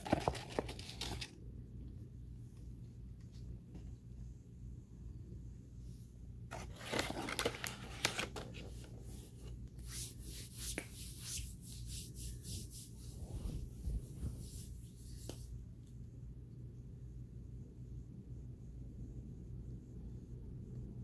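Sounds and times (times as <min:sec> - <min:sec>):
paper box rustling: 0:00.0 - 0:01.4, 0:06.5 - 0:09.6.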